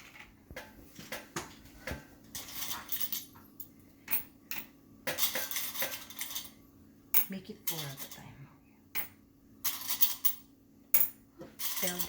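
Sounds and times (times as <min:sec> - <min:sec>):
coins clinking into tin-foil boat: 0:02.4 - 0:03.3, 0:04.1 - 0:06.6, 0:07.2 - 0:08.3, 0:09.0 - 0:10.4, 0:11.0 - 0:12.0.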